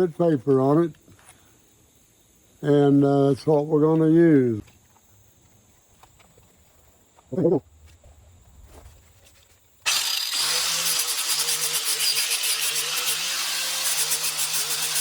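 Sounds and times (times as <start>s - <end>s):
grinder motor whine: 9.9s - 15.0s
sandpaper sanding wood: 9.9s - 15.0s.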